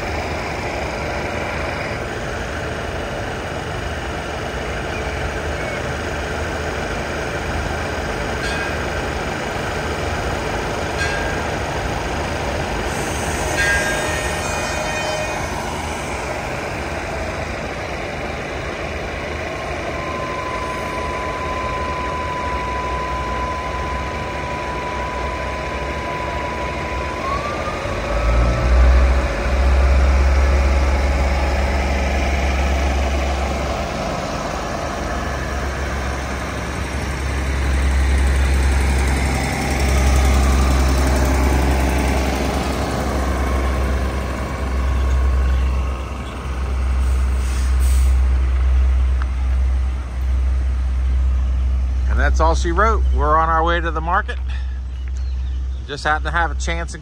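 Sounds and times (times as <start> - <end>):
deep engine drone: 0.0 - 57.0
train wheels rumbling: 0.0 - 57.0
thin high squeal: 12.9 - 16.2.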